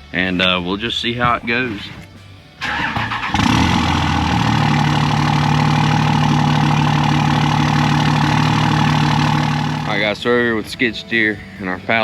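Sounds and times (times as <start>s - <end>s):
skid steer engine idling: 2.7s - 10.2s.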